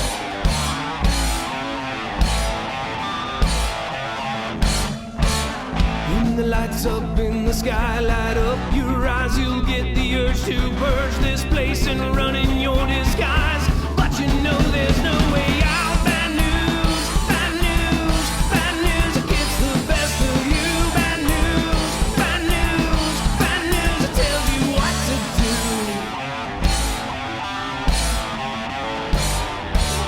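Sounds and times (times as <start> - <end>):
drums: 0.0 - 30.0
guitar: 0.0 - 30.0
person singing: 6.1 - 26.2.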